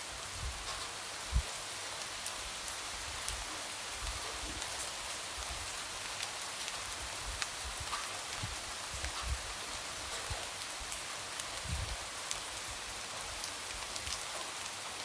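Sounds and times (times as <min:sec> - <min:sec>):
light rain hiss: 0:00.0 - 0:15.0.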